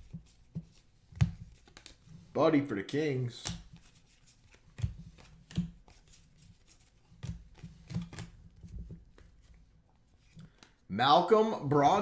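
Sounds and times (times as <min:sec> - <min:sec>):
cards clicking and sliding: 0:00.0 - 0:02.1, 0:03.4 - 0:10.8.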